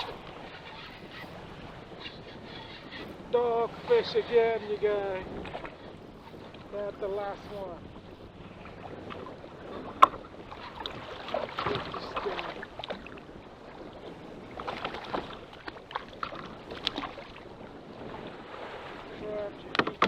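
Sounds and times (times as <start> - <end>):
water splashing against boat hull: 0.0 - 20.0
gear knocking on boat: 19.6 - 20.0.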